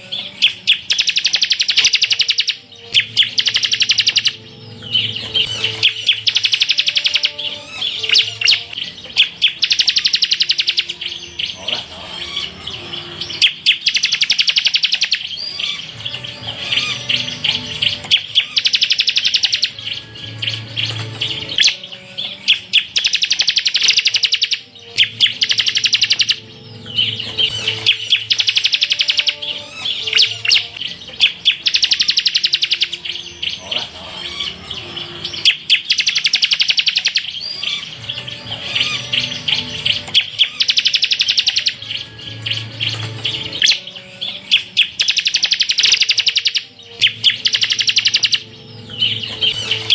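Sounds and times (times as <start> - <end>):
bird singing trilled bursts: 0.0 - 49.9.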